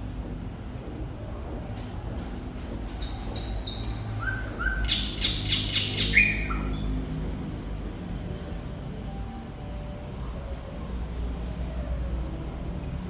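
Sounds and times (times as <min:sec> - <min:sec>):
bird singing: 0:01.8 - 0:07.6.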